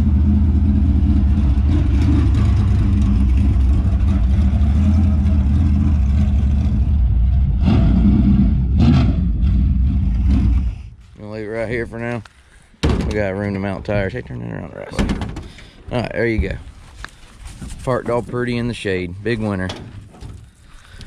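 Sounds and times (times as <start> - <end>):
race car engine running slowly: 0.0 - 11.1.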